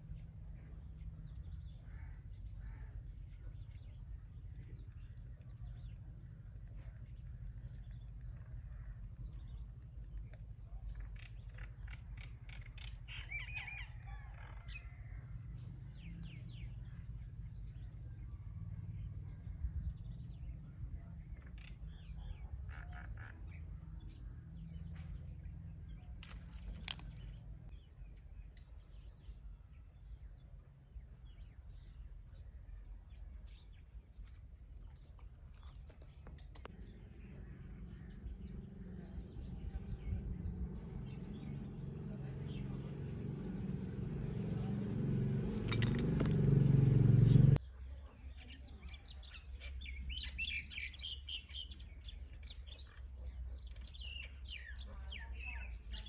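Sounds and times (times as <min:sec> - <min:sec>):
small birds chirping: 0:00.0 - 0:56.0
steady low rumble: 0:36.4 - 0:47.6.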